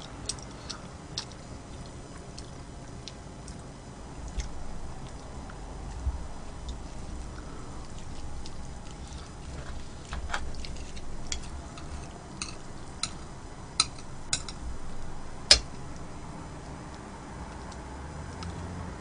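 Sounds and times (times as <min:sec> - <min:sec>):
utensils clicking against a dish: 0:10.0 - 0:14.6, 0:15.5 - 0:15.8.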